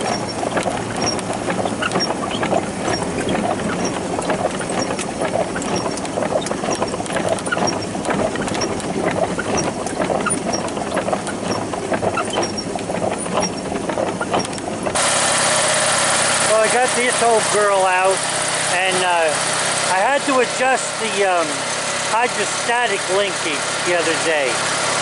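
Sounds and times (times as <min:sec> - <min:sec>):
clatter of clicks and rattles: 0:00.0 - 0:15.0
garden tractor engine running: 0:00.0 - 0:25.0.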